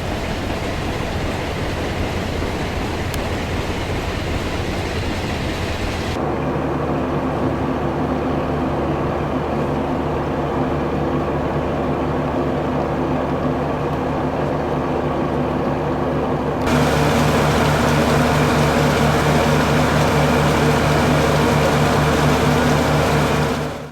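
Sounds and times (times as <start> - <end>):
ship rushing through water: 0.0 - 6.4, 16.6 - 23.9
ship engines droning: 0.0 - 6.5, 16.6 - 23.9.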